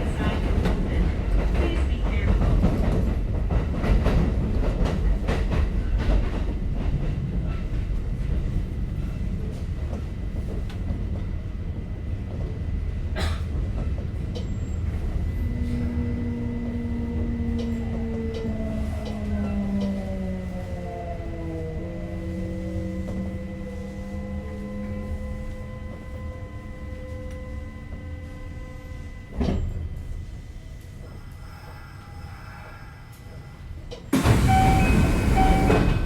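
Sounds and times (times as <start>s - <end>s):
rail clicks: 0.0s - 8.6s, 13.4s - 20.2s, 33.1s - 36.0s
train rumble: 0.0s - 36.0s.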